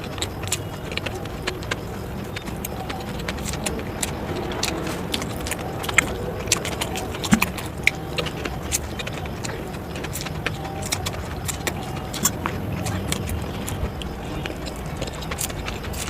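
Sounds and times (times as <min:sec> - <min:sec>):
chewing clicks and smacks: 0:00.0 - 0:16.0
low rumble: 0:01.9 - 0:08.9.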